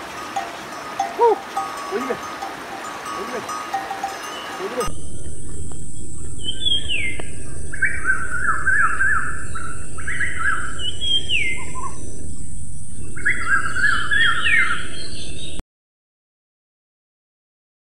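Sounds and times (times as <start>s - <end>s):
steady high hiss: 0.0s - 15.1s
songbirds whistling and trilling: 0.2s - 15.6s.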